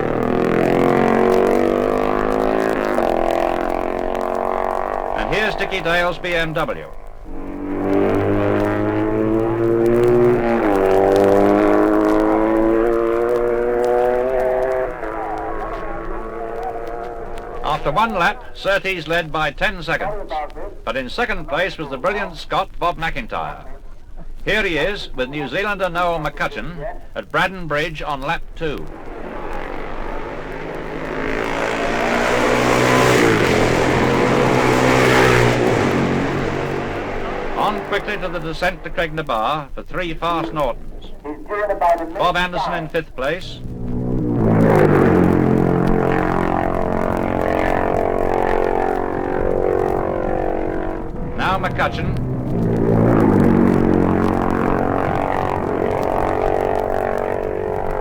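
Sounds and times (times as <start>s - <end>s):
racing motorcycle passing: 0.0s - 58.0s.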